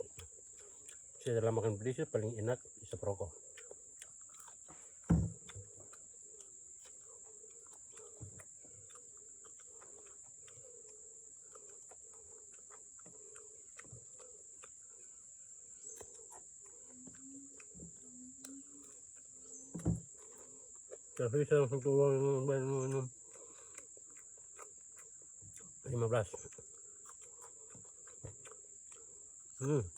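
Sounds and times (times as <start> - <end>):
insects trilling: 0.0 - 29.9
sharp thump: 5.1 - 5.4.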